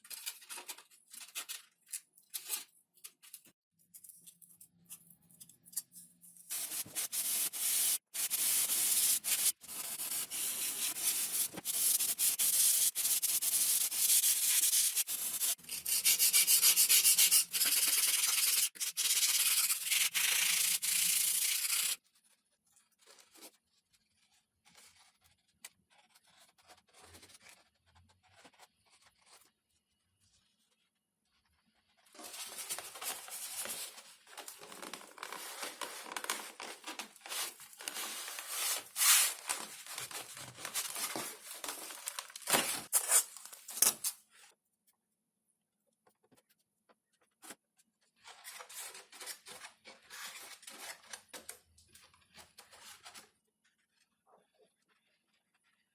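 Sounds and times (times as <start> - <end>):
foam sheet scraping: 32.2 - 43.4.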